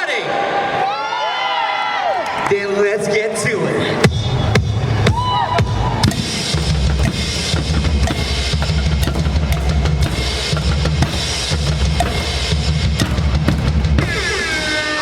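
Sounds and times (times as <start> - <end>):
drum kit playing a beat: 4.1 - 15.0.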